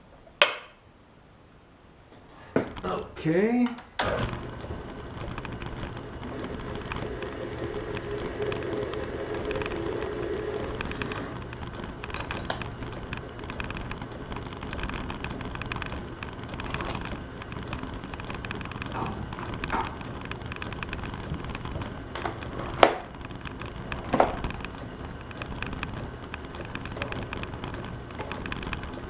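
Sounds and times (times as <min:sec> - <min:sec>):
lathe motor hum: 0:04.0 - 0:29.0.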